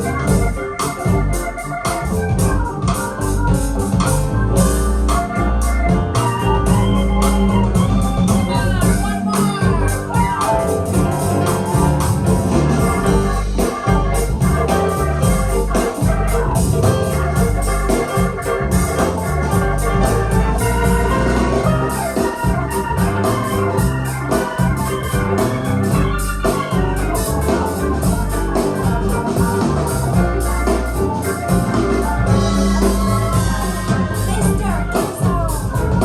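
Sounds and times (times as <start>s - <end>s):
instrumental music with heavy bass: 0.0s - 36.0s.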